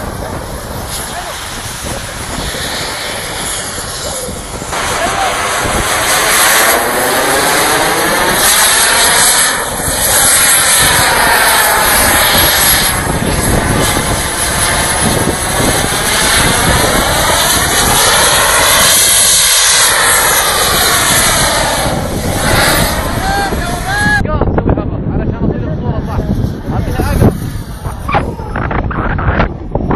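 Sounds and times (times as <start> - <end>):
model jet engine running: 0.0 - 29.9.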